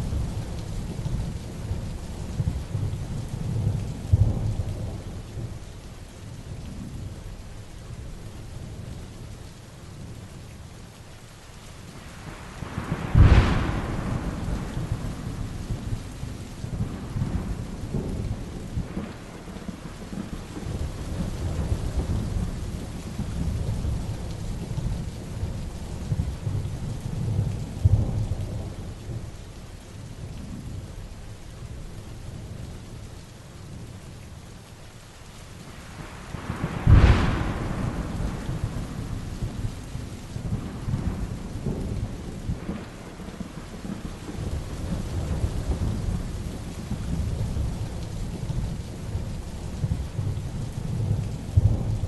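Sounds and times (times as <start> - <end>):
heavy rain falling: 0.0 - 52.0
thunder rumbling: 12.1 - 29.4, 35.7 - 52.0.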